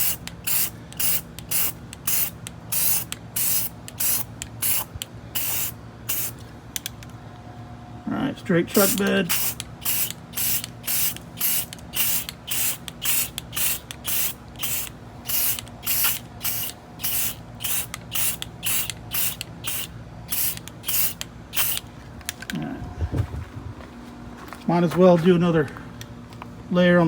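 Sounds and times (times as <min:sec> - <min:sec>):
spray can hissing: 0:00.0 - 0:06.4, 0:08.8 - 0:21.8.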